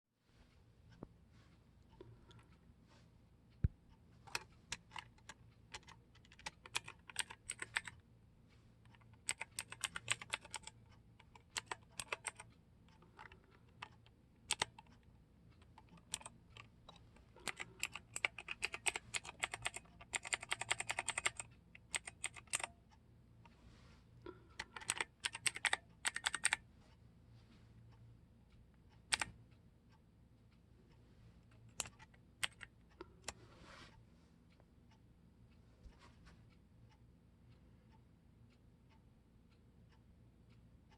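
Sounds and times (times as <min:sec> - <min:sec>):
mechanical keyboard clicking: 0:04.3 - 0:08.0, 0:08.9 - 0:15.0, 0:15.6 - 0:22.7, 0:24.6 - 0:26.6, 0:29.0 - 0:29.4, 0:31.7 - 0:33.4.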